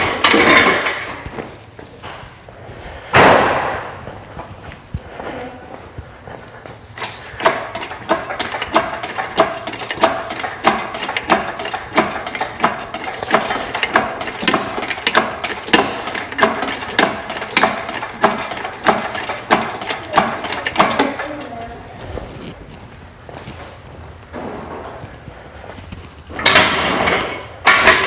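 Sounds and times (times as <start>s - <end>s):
ratchet wrench clicking: 7.0s - 21.5s.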